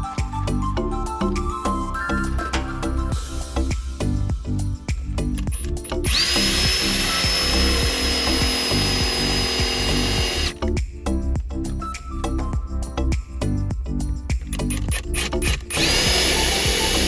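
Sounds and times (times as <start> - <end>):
background music with beat: 0.0 - 17.0
small power tool whining: 6.1 - 10.5, 15.2 - 17.0.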